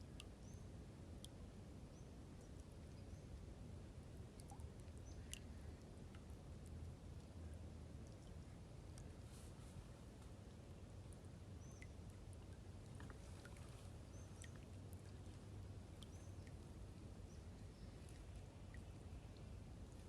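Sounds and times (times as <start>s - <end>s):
songbird chirps: 4.5s - 5.6s, 11.5s - 20.0s.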